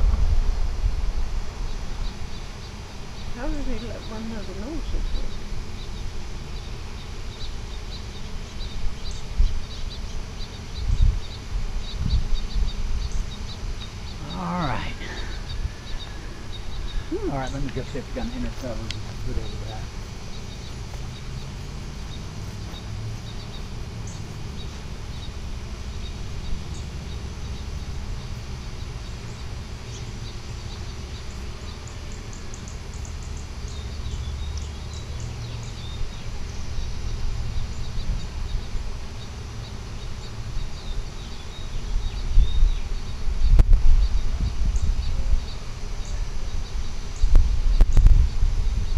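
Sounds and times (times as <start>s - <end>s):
loud low bumps: 0.0s - 4.2s
steady low rumble: 0.0s - 6.4s, 10.7s - 31.5s
birds chirping: 0.0s - 48.9s.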